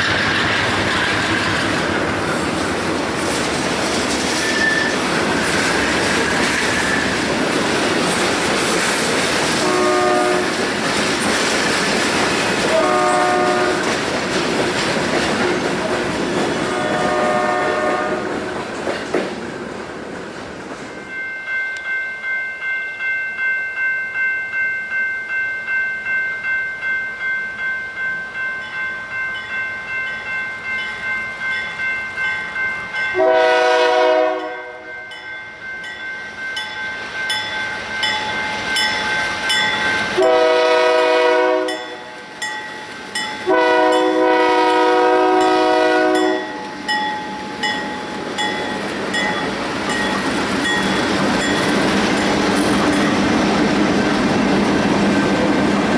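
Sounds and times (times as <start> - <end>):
train wheels clattering on rails: 0.0 - 21.1, 35.8 - 55.9
locomotive air horn blasts: 9.6 - 10.6, 12.7 - 13.9, 16.6 - 18.4, 33.2 - 34.9, 40.2 - 41.9, 43.5 - 46.5.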